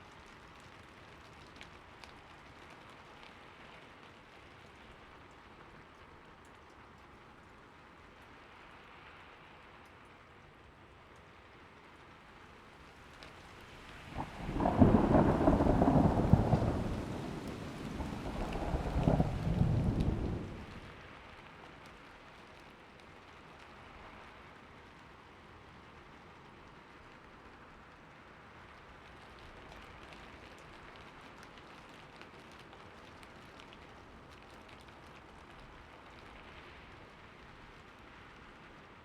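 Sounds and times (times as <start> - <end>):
steady rain falling: 0.0 - 39.0
rolling thunder: 14.1 - 20.9.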